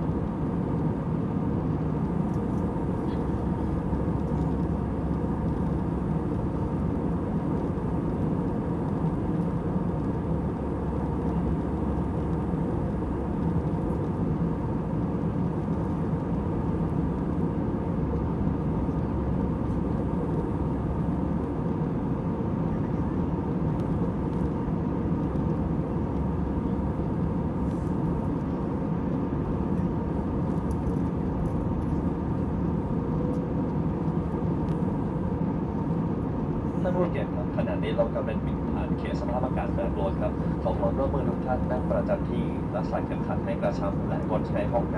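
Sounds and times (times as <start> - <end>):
airliner cabin engine drone: 0.0 - 44.9.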